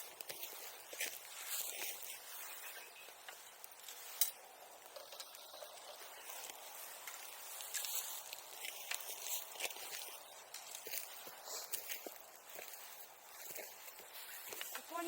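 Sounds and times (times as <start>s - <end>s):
bonfire crackling: 3.2s - 14.7s.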